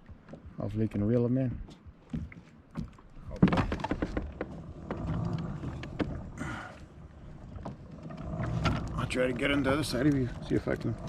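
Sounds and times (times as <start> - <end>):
fishing gear clicks and knocks: 0.0 - 11.0.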